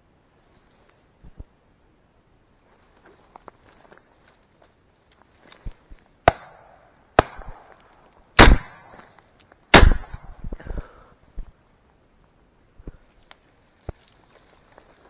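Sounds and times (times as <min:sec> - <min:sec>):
shotgun shots with echo: 0:06.3 - 0:07.8, 0:08.4 - 0:09.0, 0:09.7 - 0:10.4.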